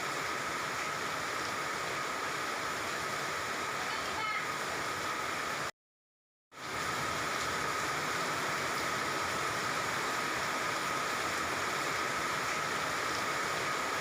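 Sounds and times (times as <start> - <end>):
falling water hissing: 6.6 - 14.0.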